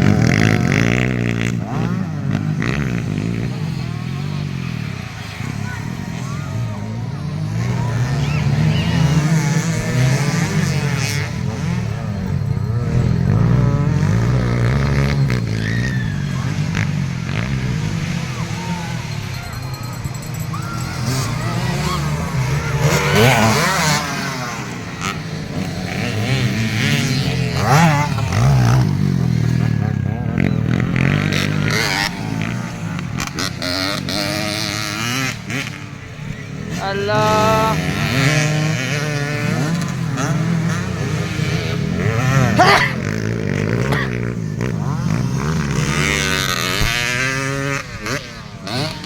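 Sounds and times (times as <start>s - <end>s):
dirt bike engines revving: 0.0s - 49.0s.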